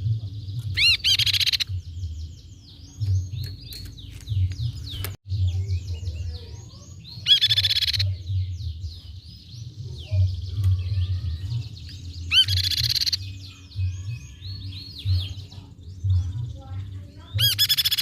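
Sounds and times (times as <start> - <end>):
bird whistling and trilling: 0.6 - 1.9, 7.0 - 8.9, 10.2 - 15.4, 17.4 - 18.0.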